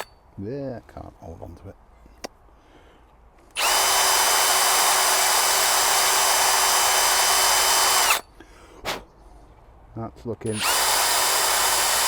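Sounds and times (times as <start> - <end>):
electric drill sanding metal: 3.6 - 8.2, 10.5 - 12.0.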